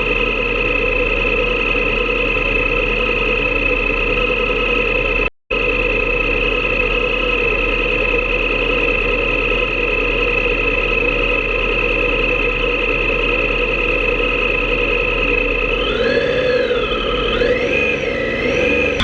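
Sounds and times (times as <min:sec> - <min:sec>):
motorcycle engine cruising: 0:15.1 - 0:19.0.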